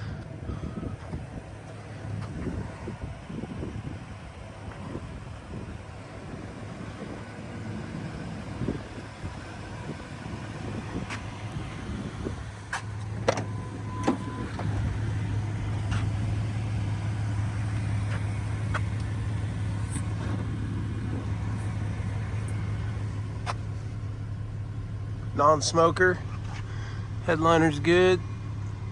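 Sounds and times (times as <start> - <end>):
pickup truck idling: 0.0 - 28.9.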